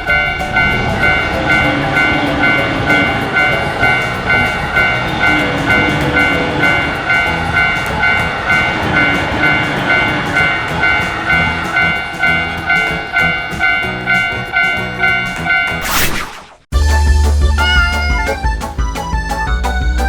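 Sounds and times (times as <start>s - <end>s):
railroad crossing alarm ringing: 0.0s - 15.8s
train rumbling: 0.0s - 15.8s.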